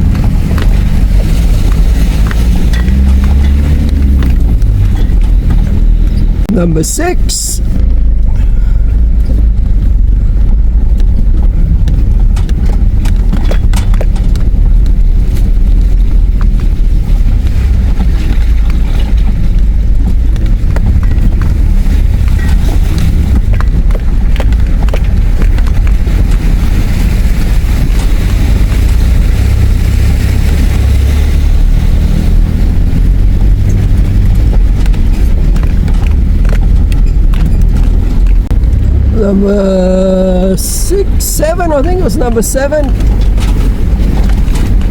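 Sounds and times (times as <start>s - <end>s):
low engine rumble: 0.0s - 44.9s
wheels knocking over rocks: 7.8s - 29.6s, 32.0s - 39.0s, 41.9s - 44.9s.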